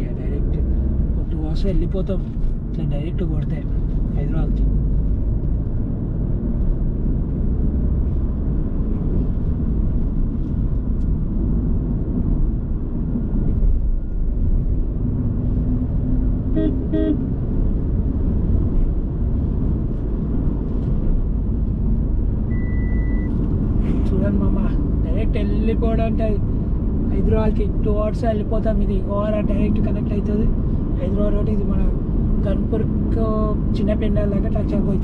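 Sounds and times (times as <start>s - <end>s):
car road and engine noise: 0.0s - 35.0s
car horn toots: 16.5s - 17.2s.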